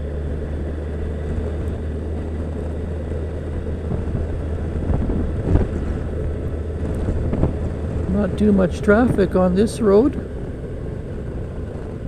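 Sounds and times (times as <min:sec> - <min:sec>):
motorcycle engine running: 0:00.0 - 0:12.0
wind rushing over microphone: 0:01.2 - 0:12.0.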